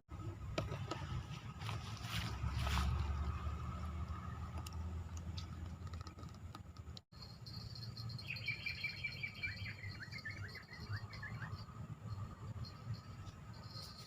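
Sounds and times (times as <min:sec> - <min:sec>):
bird chirping: 0:07.2 - 0:14.0.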